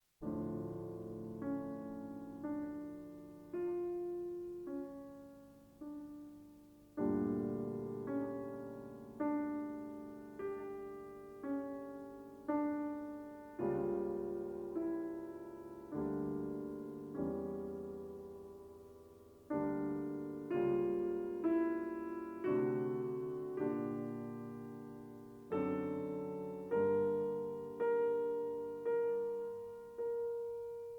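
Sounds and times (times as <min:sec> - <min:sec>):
slow solo piano: 0:00.0 - 0:30.9.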